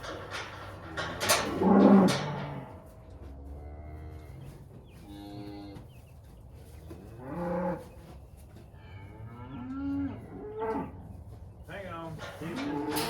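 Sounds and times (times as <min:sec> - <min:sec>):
cattle mooing: 0:00.9 - 0:02.8, 0:12.4 - 0:13.0.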